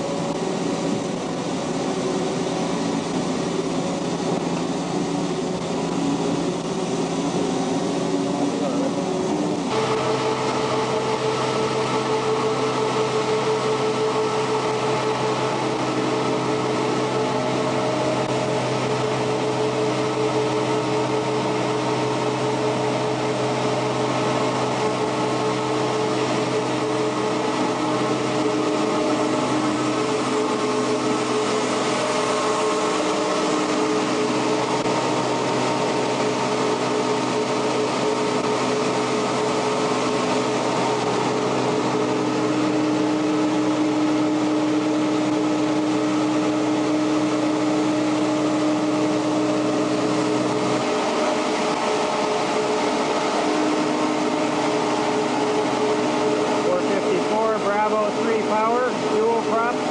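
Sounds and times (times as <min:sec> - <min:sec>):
engine droning: 0:00.0 - 0:59.9.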